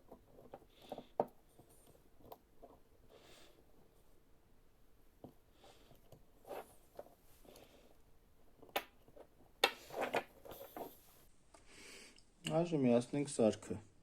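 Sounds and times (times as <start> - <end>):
parts clattering: 0.0 - 4.2, 5.0 - 11.3
rustling of plastic and metal parts: 0.0 - 11.3.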